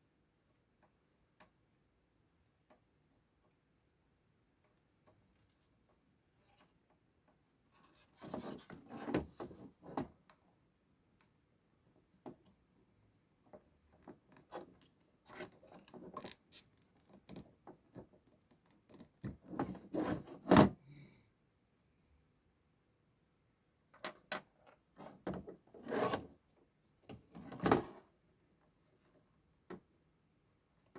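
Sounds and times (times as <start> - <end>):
tools clicking and knocking: 15.6 - 17.1.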